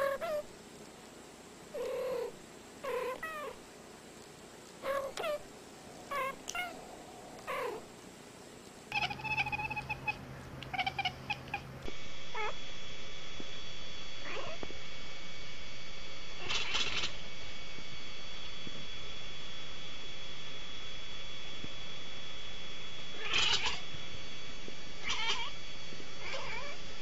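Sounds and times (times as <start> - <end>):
steady hum: 0.0 - 27.0
cats meowing: 1.8 - 3.6, 4.8 - 7.9, 8.9 - 11.7, 16.4 - 17.1, 23.2 - 23.8, 25.0 - 25.6, 26.2 - 26.8.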